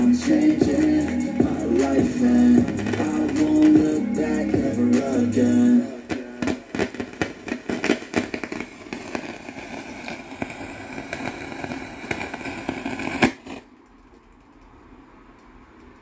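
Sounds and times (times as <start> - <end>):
dense crackling clicks and pops: 0.0 - 16.0
hiss: 6.0 - 13.6.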